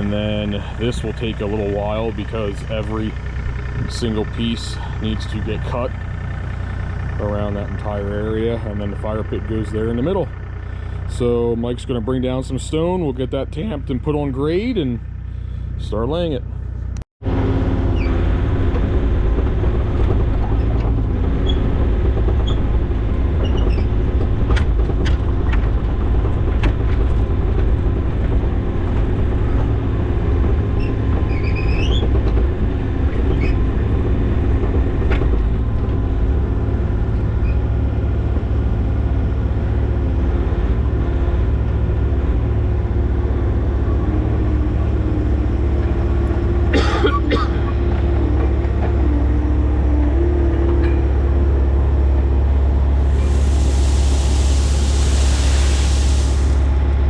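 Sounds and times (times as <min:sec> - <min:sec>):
diesel engine running: 0:00.0 - 0:57.0
short squeak: 0:17.9 - 0:18.2, 0:30.8 - 0:32.2, 0:37.4 - 0:37.7.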